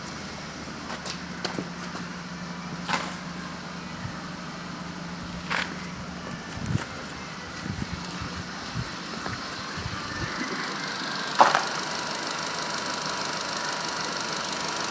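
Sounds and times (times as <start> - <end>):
petrol engine idling: 0.0 - 14.9
light engine knocks: 11.4 - 11.8.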